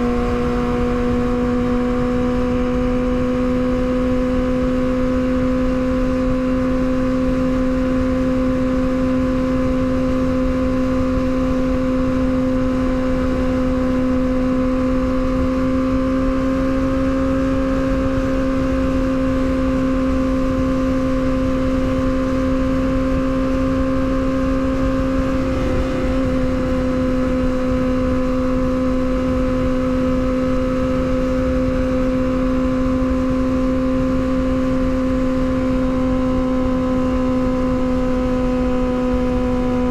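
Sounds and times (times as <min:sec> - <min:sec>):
wind rushing over microphone: 0:00.0 - 0:04.2, 0:14.8 - 0:39.9
motorcycle engine cruising: 0:00.0 - 0:39.9.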